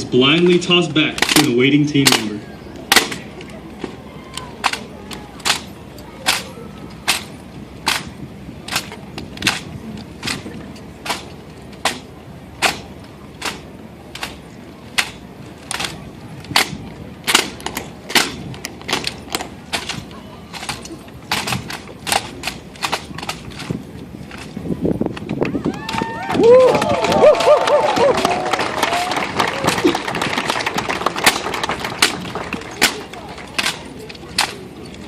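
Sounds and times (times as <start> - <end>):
hands slapping rifles: 28.0 - 33.8.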